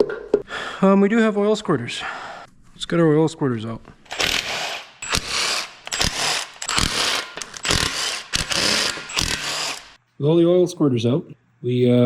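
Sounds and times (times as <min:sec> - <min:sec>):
cordless power tool bursts: 0:04.1 - 0:10.0.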